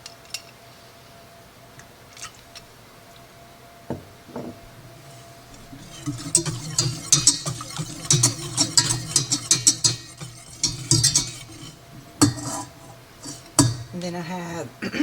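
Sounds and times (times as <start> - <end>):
faint steady hum: 0.0 - 15.0
kitchen utensils clicking and tapping: 3.9 - 14.0.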